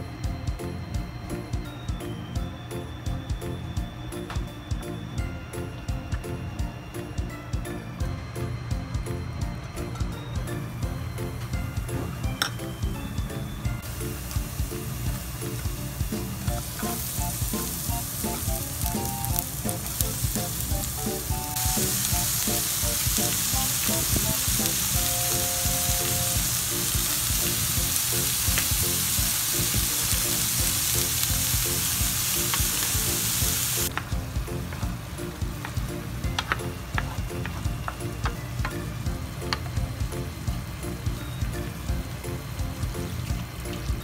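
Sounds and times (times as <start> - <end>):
chicken sizzling in oil: 13.8 - 33.9.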